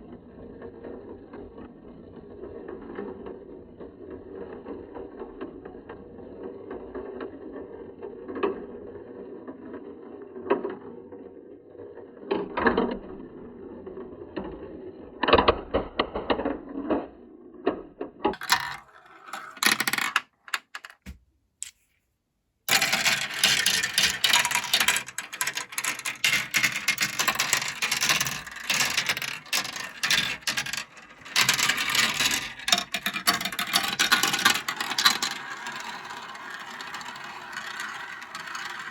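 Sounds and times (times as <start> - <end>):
marbles rolling on plastic track: 0.4 - 17.1, 18.3 - 21.2, 22.7 - 38.9
marbles clattering together: 18.3 - 21.2, 22.7 - 38.9.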